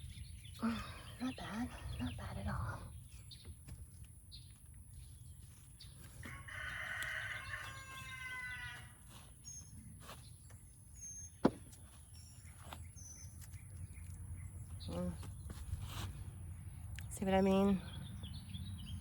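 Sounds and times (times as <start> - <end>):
small birds chirping: 0.0 - 19.0
rooster crowing: 6.2 - 9.0.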